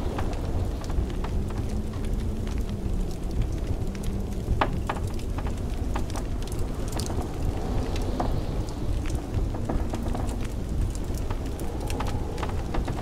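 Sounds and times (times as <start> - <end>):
blizzard wind rumble: 0.0 - 13.0
wood fire crackling and popping: 0.0 - 13.0.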